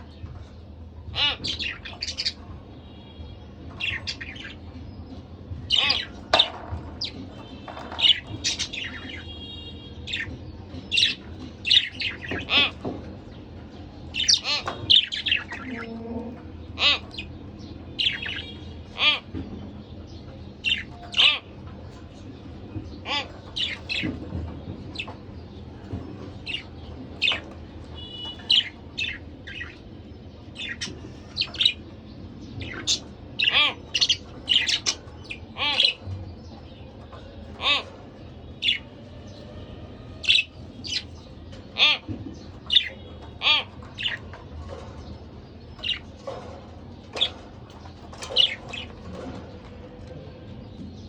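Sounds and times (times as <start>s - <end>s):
budgerigars chirping and squawking: 0.0s - 51.0s.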